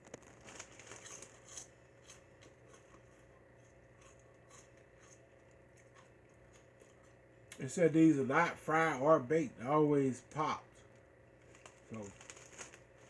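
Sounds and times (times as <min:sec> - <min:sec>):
plastic snack bag crinkling: 0:00.0 - 0:03.3, 0:11.3 - 0:13.0.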